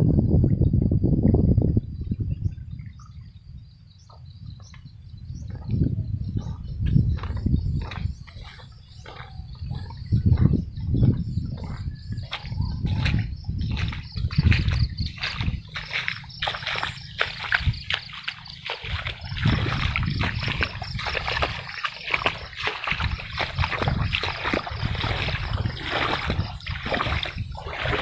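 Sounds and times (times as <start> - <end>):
wind buffeting microphone: 0.0 - 28.0
creek water rushing: 15.2 - 28.0.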